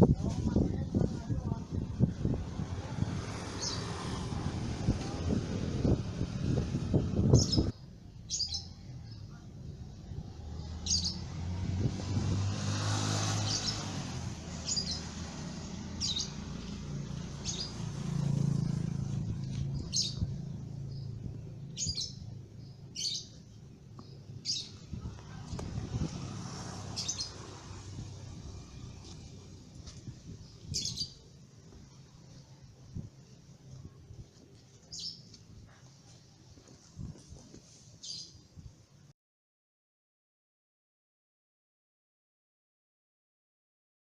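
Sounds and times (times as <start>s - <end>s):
bird chirping: 7.3s - 9.4s, 19.6s - 24.9s, 30.4s - 31.3s.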